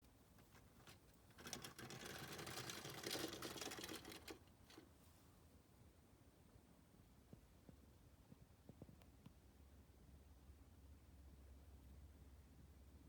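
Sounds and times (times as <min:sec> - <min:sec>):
rattle of rapid clicks: 0:01.3 - 0:04.8.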